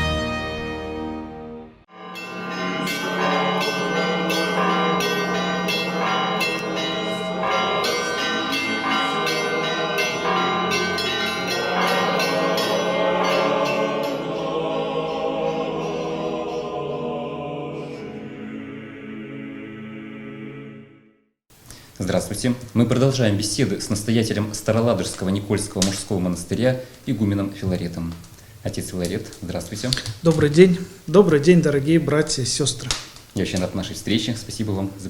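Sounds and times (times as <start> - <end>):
church bells ringing: 1.9 - 17.3.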